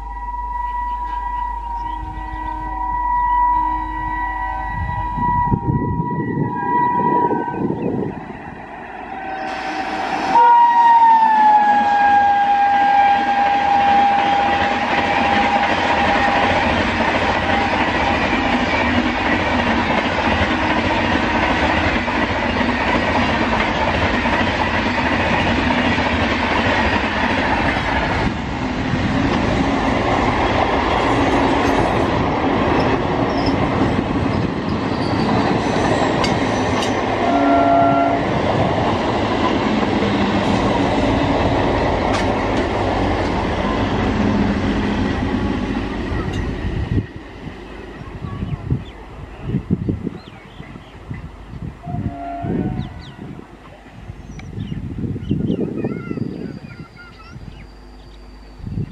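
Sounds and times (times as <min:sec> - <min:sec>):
locomotive horn: 0:00.0 - 0:16.7, 0:37.2 - 0:38.4, 0:51.8 - 0:53.4
train coaches rumbling past: 0:00.0 - 0:58.9.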